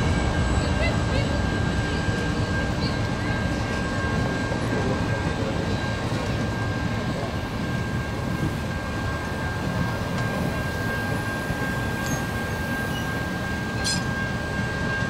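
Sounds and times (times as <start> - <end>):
constant high whine: 0.0 - 15.0
train rumbling past: 0.0 - 15.0.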